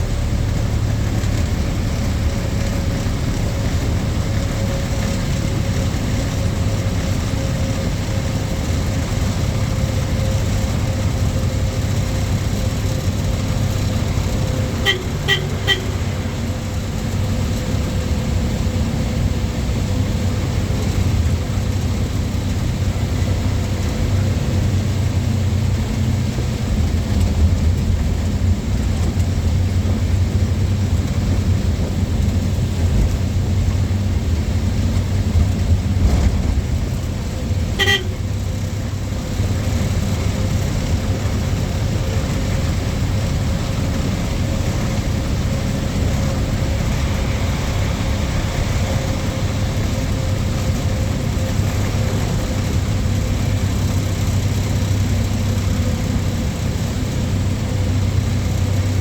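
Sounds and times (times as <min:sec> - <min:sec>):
truck engine and road noise: 0:00.0 - 0:59.0
truck horn toot: 0:14.6 - 0:16.5, 0:37.7 - 0:38.4.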